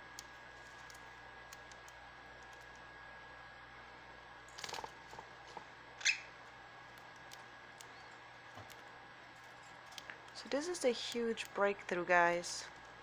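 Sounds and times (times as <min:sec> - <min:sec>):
cockatiel chirp: 0:06.0 - 0:06.3.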